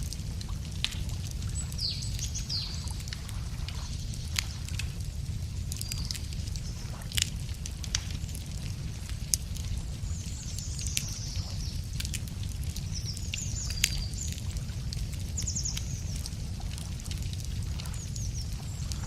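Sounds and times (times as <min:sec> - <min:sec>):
low rumble: 0:00.0 - 0:19.0
wood fire crackling and popping: 0:00.0 - 0:19.0
songbirds trilling: 0:01.4 - 0:04.6, 0:10.1 - 0:12.1, 0:12.8 - 0:14.4, 0:17.8 - 0:19.0.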